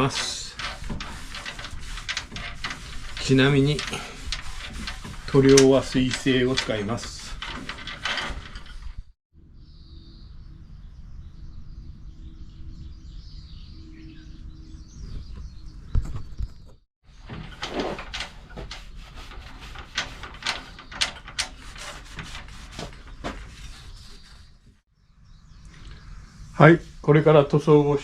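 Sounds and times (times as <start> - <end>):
objects being handled: 0.0 - 9.2
outdoor background noise: 0.0 - 28.0
faint bird chirps: 23.7 - 27.1.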